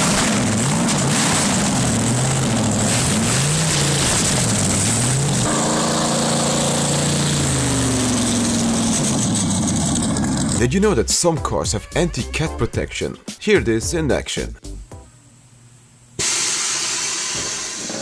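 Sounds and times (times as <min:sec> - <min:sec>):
engine revving: 0:00.0 - 0:10.7.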